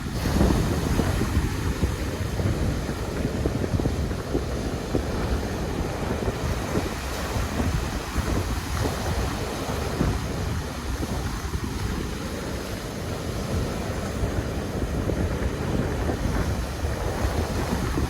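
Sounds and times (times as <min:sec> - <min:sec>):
ocean waves on a beach: 0:00.0 - 0:18.0
wind buffeting microphone: 0:00.0 - 0:18.0.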